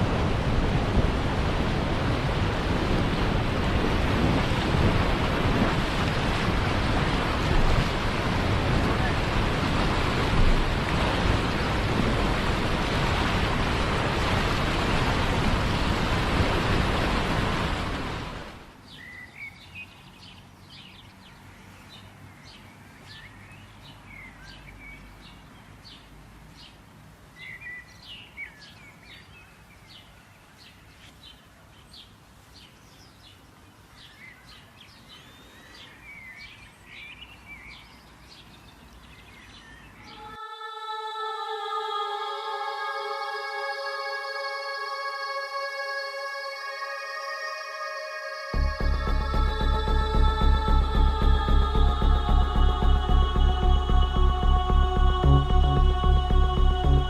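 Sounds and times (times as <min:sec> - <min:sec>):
ocean surf rushing: 0:00.0 - 0:18.8, 0:40.1 - 0:57.0.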